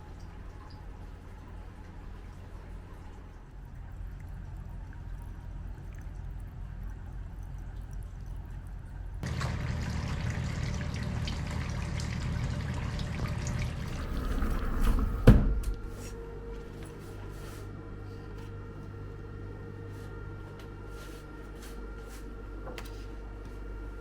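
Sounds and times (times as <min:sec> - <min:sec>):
water pouring and splashing: 0:02.2 - 0:15.4.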